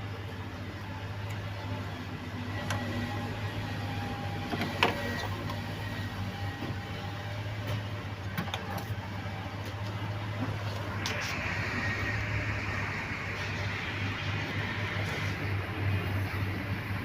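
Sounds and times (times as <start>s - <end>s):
steady low hum: 0.0s - 17.0s
engine parts clicking and knocking: 7.6s - 11.4s.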